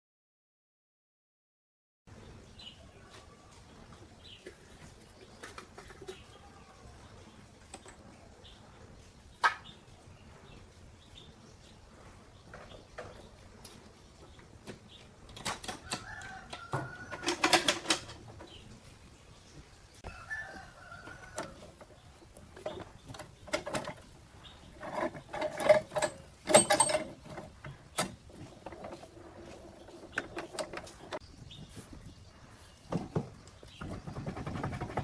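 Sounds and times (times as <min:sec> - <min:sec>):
sharp knocks and clanks: 0:24.8 - 0:29.1.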